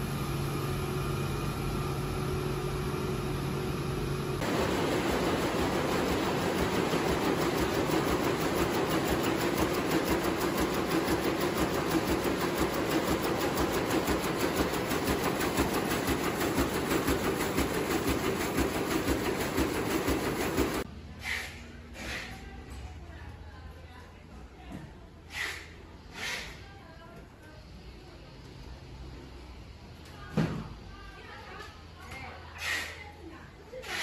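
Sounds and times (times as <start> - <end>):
textile machinery clattering: 4.4 - 20.9.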